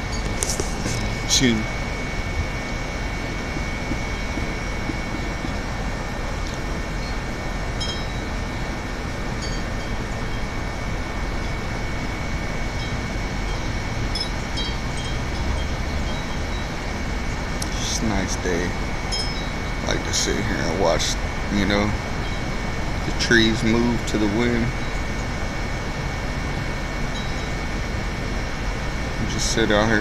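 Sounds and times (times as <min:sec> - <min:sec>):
faint high tinkling: 0:00.0 - 0:01.8, 0:07.0 - 0:17.0, 0:17.7 - 0:21.2, 0:27.1 - 0:27.7.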